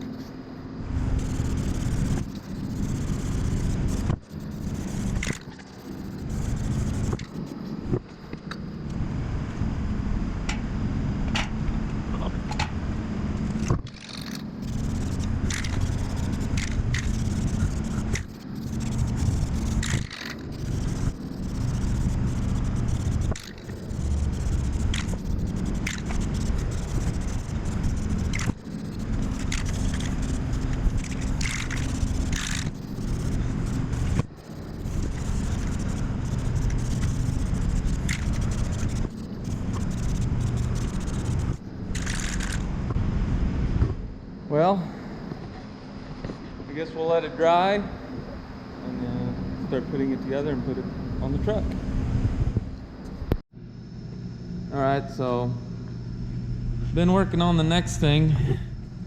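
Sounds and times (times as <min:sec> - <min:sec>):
spray paint bursts: 0:01.0 - 0:07.6, 0:13.8 - 0:42.6.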